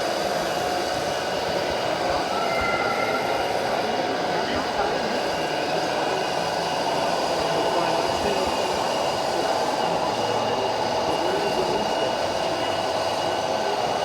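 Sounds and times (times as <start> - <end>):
faint murmur of voices: 0.0 - 14.0
high steady tones: 2.2 - 4.8.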